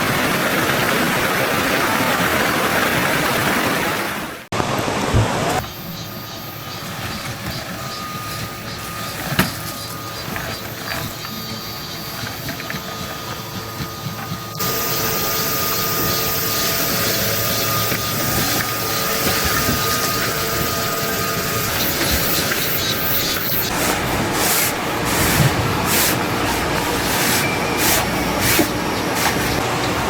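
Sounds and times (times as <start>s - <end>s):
stream water rushing: 0.0s - 5.6s, 14.6s - 30.0s.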